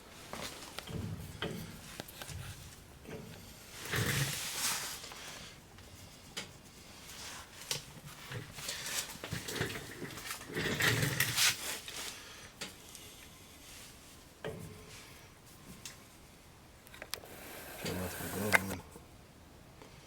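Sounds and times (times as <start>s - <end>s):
hands rubbing and scraping metal parts: 0.0s - 12.3s
light clicks and knocks: 0.4s - 4.3s.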